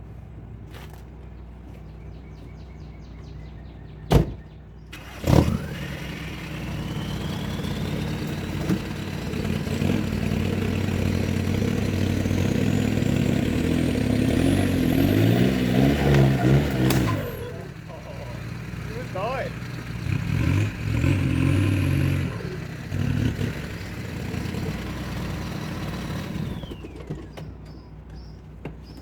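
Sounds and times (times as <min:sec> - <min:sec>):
truck engine idling and revving: 0:00.0 - 0:29.0
rising engine whine: 0:05.0 - 0:27.6.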